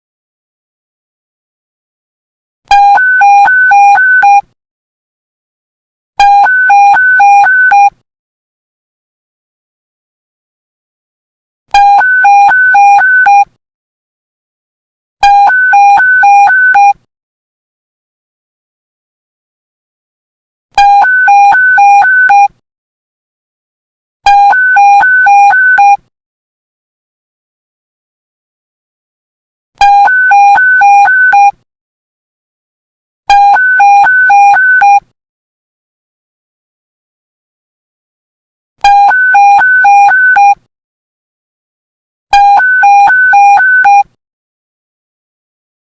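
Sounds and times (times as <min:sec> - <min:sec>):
electronic two-tone alert beep: 0:20.8 - 0:22.5, 0:24.3 - 0:26.0, 0:29.8 - 0:31.5, 0:33.3 - 0:35.0, 0:38.8 - 0:40.6, 0:42.4 - 0:44.1.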